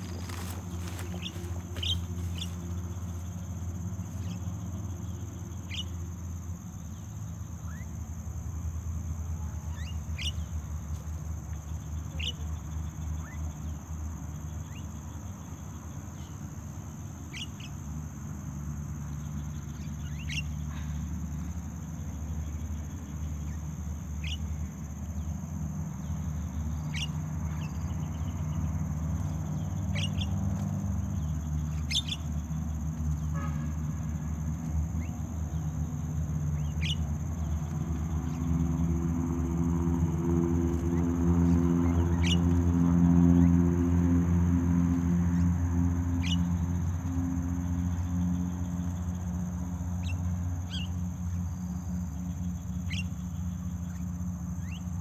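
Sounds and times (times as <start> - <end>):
downward-sliding bird calls: 0.0 - 3.2
high insect drone: 0.0 - 55.0.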